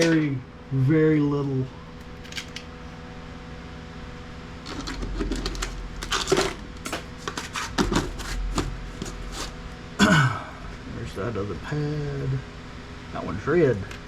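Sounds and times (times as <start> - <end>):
small hard parts clattering: 4.6 - 9.1.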